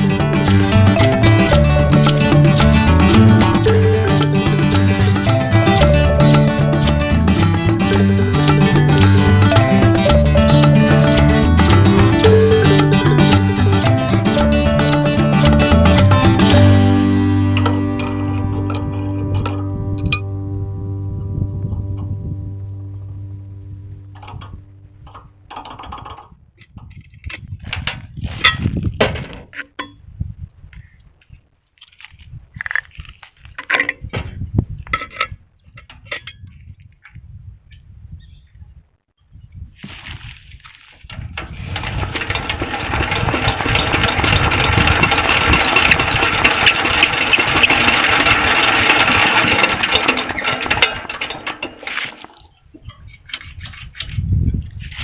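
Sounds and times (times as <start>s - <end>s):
background music held notes: 0.0s - 25.5s
diesel engine turning over: 0.0s - 26.3s, 41.1s - 53.4s.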